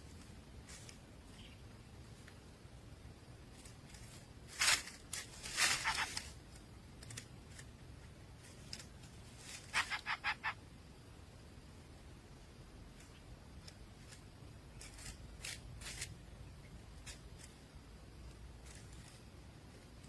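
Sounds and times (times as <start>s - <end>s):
nestling birds rasping calls: 5.0s - 6.5s, 9.3s - 10.7s.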